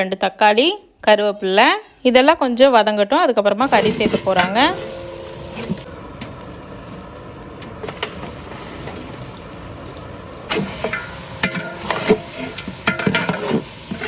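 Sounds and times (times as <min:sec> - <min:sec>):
spices frying hiss: 0:03.5 - 0:14.0
ladle knocking and scraping pot: 0:03.8 - 0:06.5, 0:10.5 - 0:14.0.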